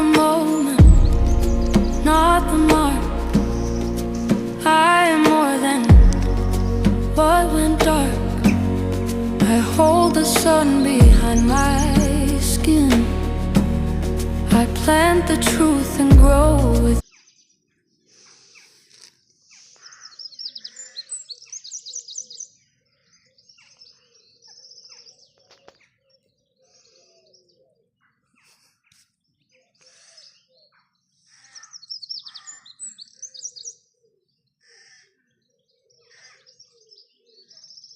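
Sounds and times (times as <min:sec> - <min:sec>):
small birds trilled chirping: 0:17.0 - 0:37.9.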